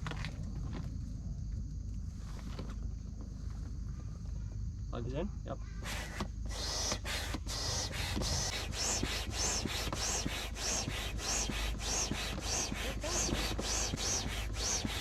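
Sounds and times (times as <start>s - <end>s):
hand air pump strokes hissing: 5.8s - 15.0s.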